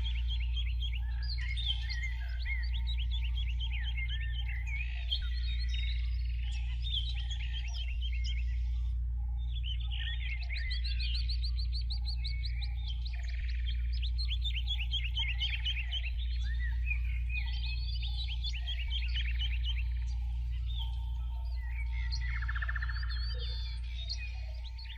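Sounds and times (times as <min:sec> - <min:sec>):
small birds chirping: 0:00.0 - 0:24.9
steady low hum: 0:00.0 - 0:24.9.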